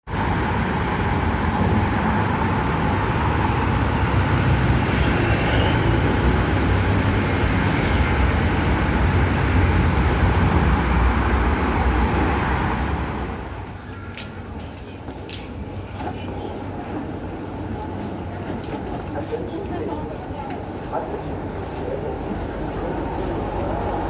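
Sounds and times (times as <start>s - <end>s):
metro train running rumble: 0.1s - 24.0s.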